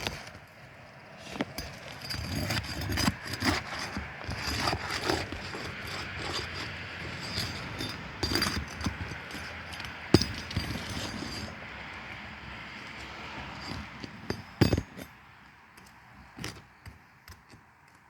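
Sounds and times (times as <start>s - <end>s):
metal tool scraping shingles: 1.2s - 11.6s.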